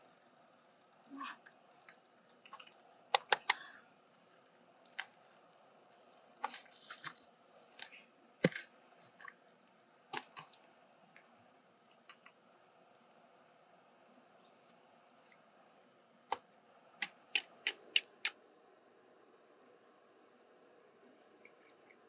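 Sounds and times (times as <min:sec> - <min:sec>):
mussel shell clicks and crunches: 0:17.0 - 0:18.4.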